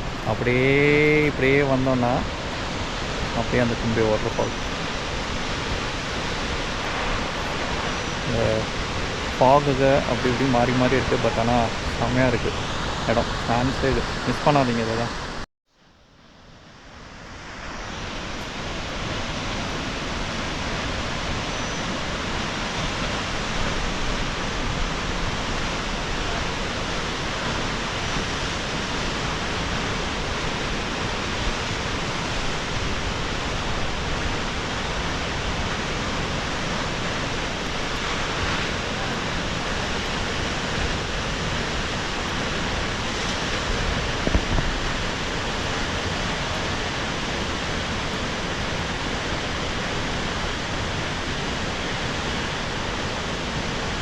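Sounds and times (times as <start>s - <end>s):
waterfall roaring: 0.0s - 15.4s, 17.1s - 54.0s.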